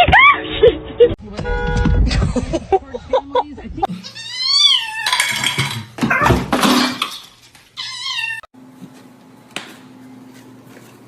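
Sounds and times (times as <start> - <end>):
cat meowing: 4.0 - 5.2, 7.8 - 8.5
clattering: 5.0 - 7.5.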